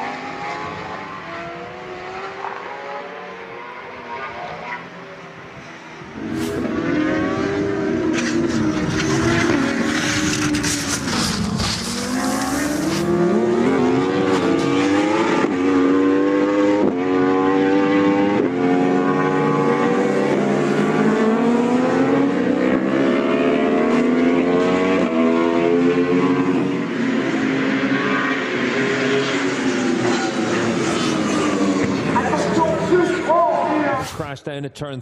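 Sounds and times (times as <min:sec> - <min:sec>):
racing motorcycle engine revving: 0:06.0 - 0:34.0.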